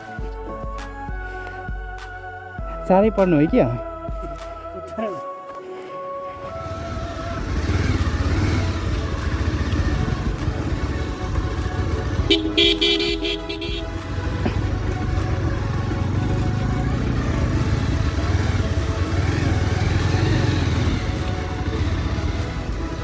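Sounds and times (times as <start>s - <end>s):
motorcycle engine running: 6.4s - 23.0s
vehicle horn honking: 12.2s - 14.1s.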